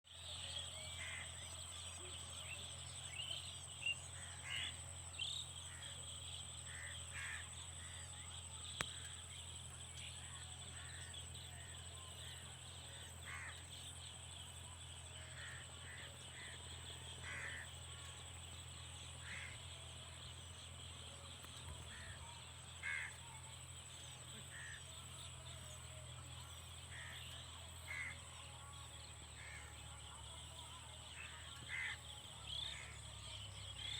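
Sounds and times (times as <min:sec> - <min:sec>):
crow-like bird calls: 0:13.3 - 0:13.5, 0:17.2 - 0:17.7, 0:22.8 - 0:23.2, 0:31.7 - 0:32.0.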